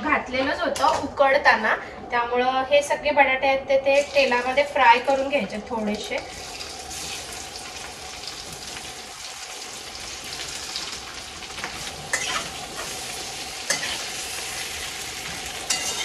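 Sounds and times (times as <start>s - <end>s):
potatoes sizzling in hot oil: 4.0s - 16.0s.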